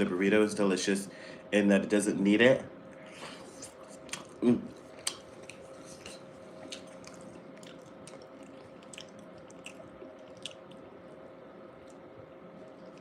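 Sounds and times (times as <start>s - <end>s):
chewing soft food: 2.9s - 13.0s
wet mouth clicks: 5.0s - 10.8s.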